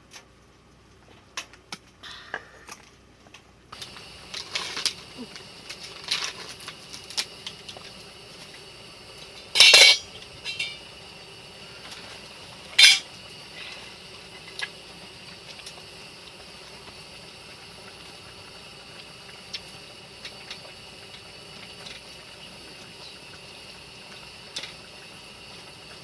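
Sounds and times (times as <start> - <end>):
steady hiss: 3.7 - 26.0
dishes clinking and scraping: 9.4 - 10.8, 12.8 - 13.1.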